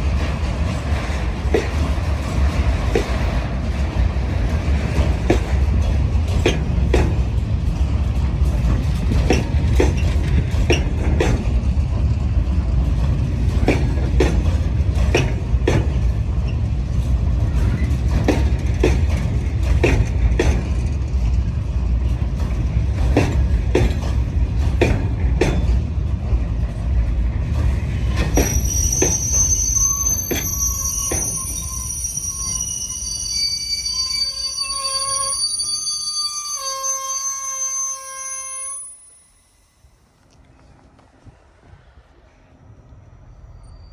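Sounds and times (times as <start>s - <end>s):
wheels clicking over rail joints: 0.0s - 32.6s
train rumbling past: 0.0s - 43.9s
metallic wheel squealing: 28.1s - 39.8s.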